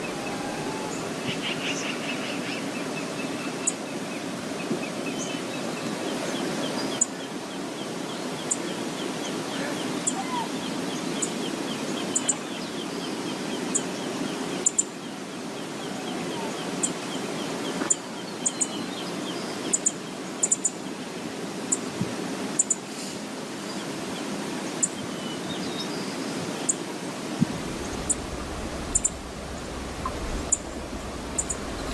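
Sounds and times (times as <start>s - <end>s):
bird trilling: 0.0s - 1.4s, 27.7s - 31.9s
waterfall rushing: 0.0s - 1.6s, 26.6s - 31.9s
wind noise on microphone: 27.4s - 31.9s.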